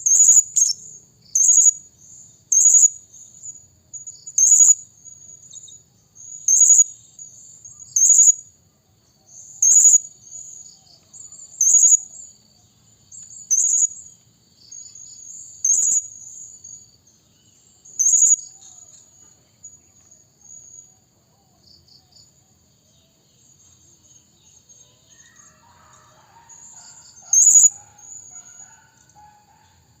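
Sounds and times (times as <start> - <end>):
soft bird twittering: 14.7 - 16.8, 17.5 - 19.0.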